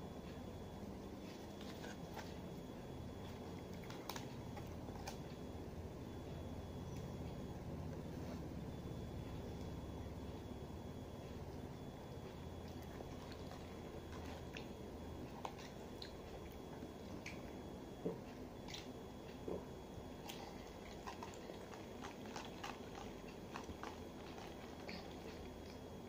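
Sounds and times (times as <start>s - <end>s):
steady low hum: 0.0s - 26.0s
person chewing: 20.2s - 26.0s.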